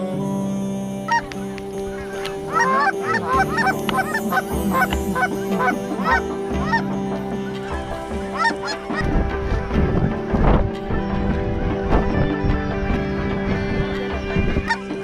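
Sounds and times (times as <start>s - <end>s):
background music: 0.0s - 15.0s
geese honking: 1.1s - 9.8s, 14.0s - 15.0s.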